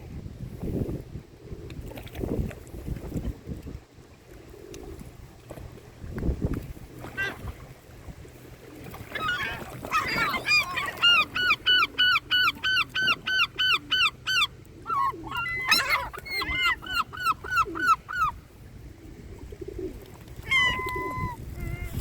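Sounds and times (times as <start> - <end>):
gull calling: 7.0 - 7.5, 9.0 - 18.5, 20.4 - 22.0.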